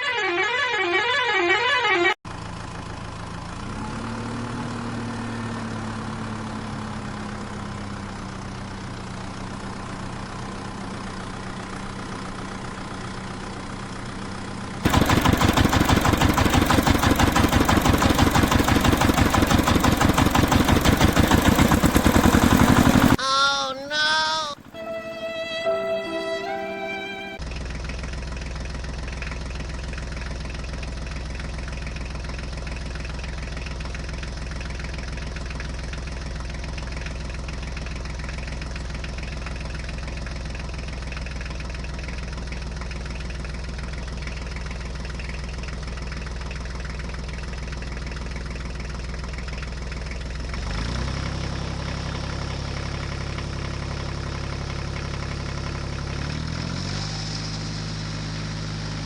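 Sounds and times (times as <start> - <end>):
heavy engine idling: 2.3 - 4.8, 6.0 - 23.2.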